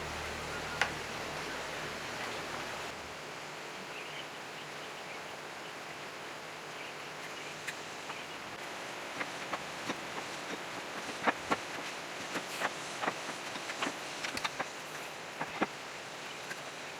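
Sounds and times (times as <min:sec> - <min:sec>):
faint chirps: 0:00.0 - 0:02.9
low hum: 0:00.0 - 0:02.9.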